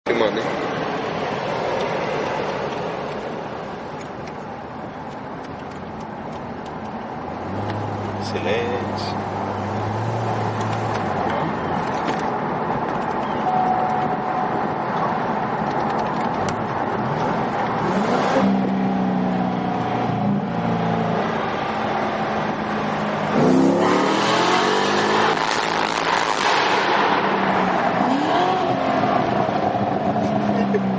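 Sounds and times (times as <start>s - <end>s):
car engine revving: 15.5s - 30.8s.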